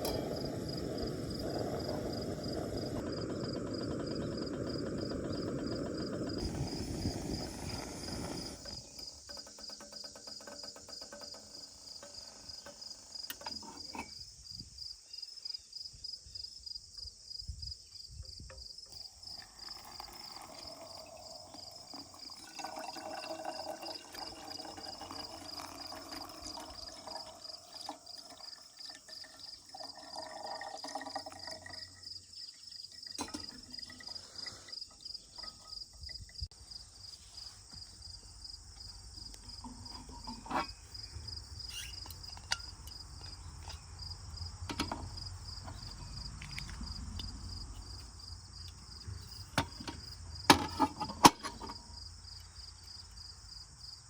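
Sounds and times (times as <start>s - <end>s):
insects chirping: 0.0s - 54.0s
sharp clicks and knocks: 8.6s - 14.2s
water pouring: 19.0s - 34.8s.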